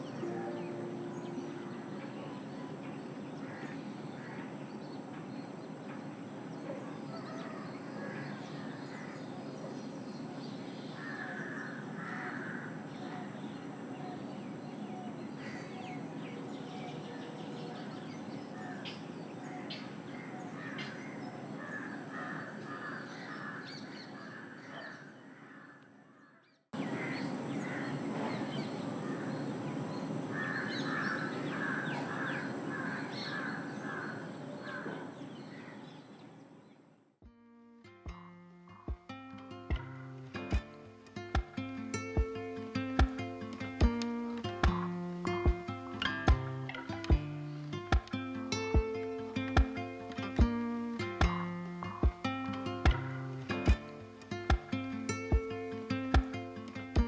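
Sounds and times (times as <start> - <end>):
birds calling: 0.0 - 36.9, 38.1 - 57.0
steady background noise: 26.8 - 37.0.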